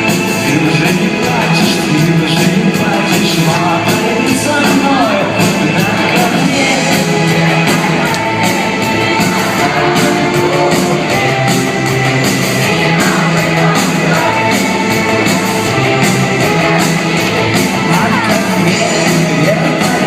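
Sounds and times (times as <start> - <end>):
live rock band playing: 0.0 - 20.0
person singing: 0.0 - 20.0.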